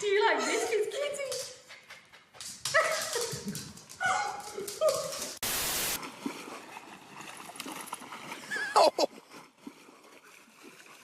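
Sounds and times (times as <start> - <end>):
burst of hiss: 5.4 - 6.0.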